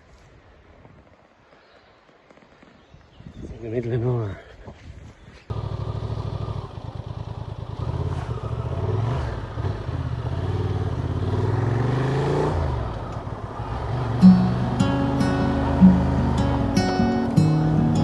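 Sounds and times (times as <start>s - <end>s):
motorcycle engine revving: 5.5s - 18.0s.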